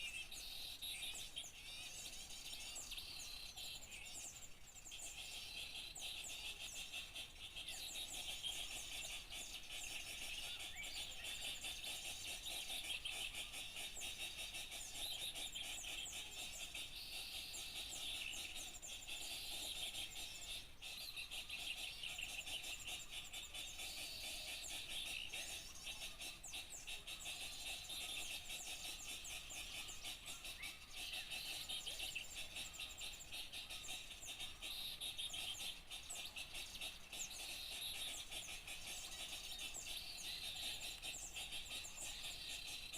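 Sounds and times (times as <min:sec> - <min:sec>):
small birds chirping and twittering: 0:00.0 - 0:42.9.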